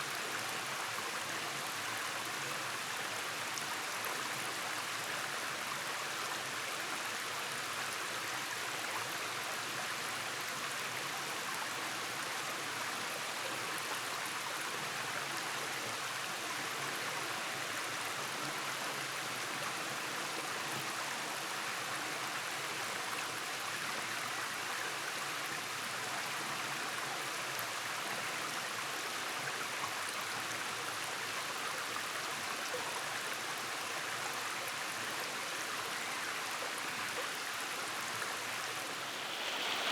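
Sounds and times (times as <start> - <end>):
stream flowing over cascades: 33.7 - 39.9.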